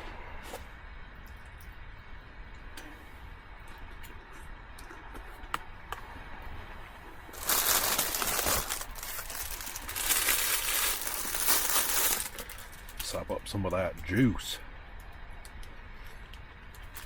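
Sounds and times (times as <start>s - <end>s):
plastic snack bag crinkling: 7.4s - 13.2s.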